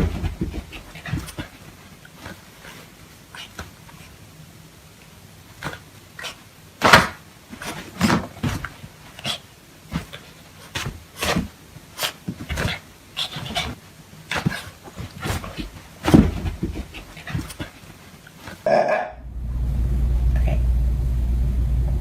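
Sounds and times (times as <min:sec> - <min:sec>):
dog panting: 0:00.0 - 0:04.2, 0:12.0 - 0:18.6.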